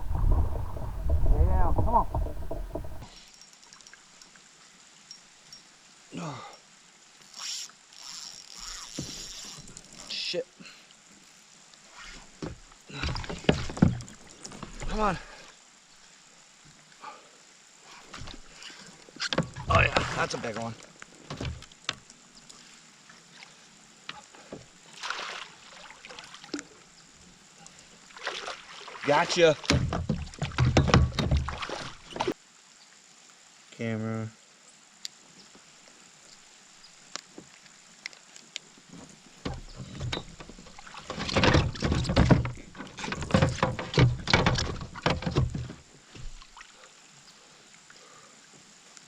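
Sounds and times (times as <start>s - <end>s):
knocking and rustling in a boat: 0.0s - 3.0s, 12.2s - 15.0s, 19.2s - 22.0s, 29.6s - 32.4s, 38.8s - 46.5s
faint water around boat: 0.0s - 33.2s, 33.8s - 49.0s
short splash: 25.0s - 26.4s, 28.2s - 29.7s.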